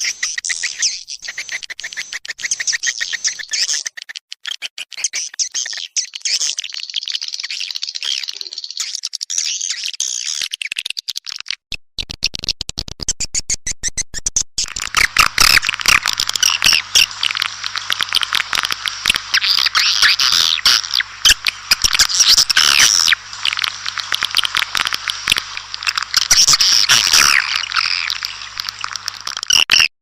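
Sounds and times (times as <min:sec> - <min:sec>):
swiftlets twittering: 0:14.6 - 0:29.9.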